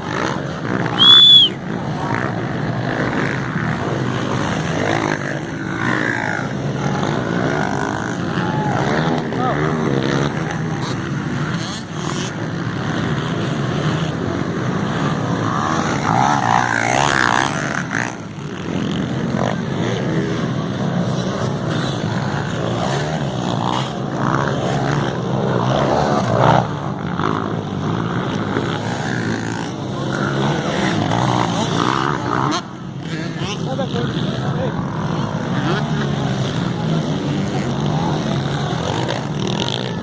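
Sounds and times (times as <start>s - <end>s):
dirt bike engines revving: 0.0s - 40.0s.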